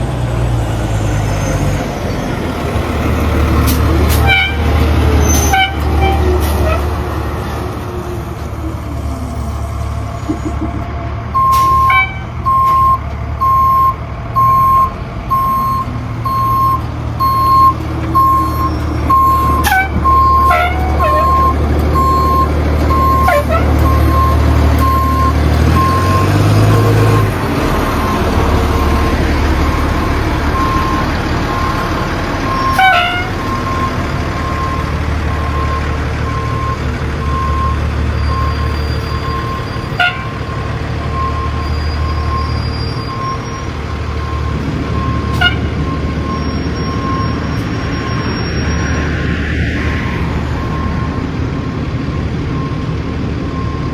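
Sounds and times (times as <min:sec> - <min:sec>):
engine running: 0:00.0 - 0:48.0
reversing alarm beeping: 0:11.3 - 0:27.3, 0:28.0 - 0:49.1, 0:53.5 - 0:53.9.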